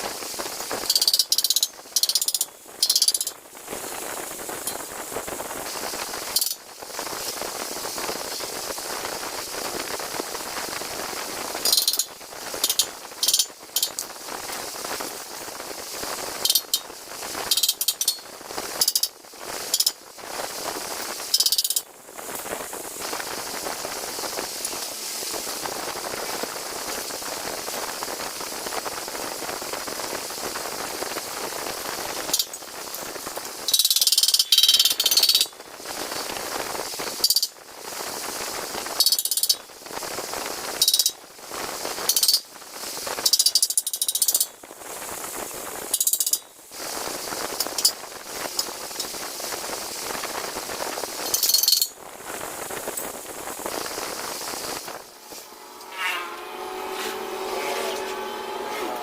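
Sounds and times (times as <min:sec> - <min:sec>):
steady mechanical background: 0:54.7 - 0:59.0
tool working on metal: 0:55.0 - 0:59.0.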